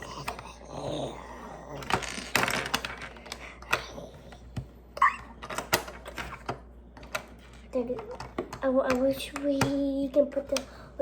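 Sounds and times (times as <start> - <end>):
plastic pieces clicking and rattling: 1.8 - 3.9.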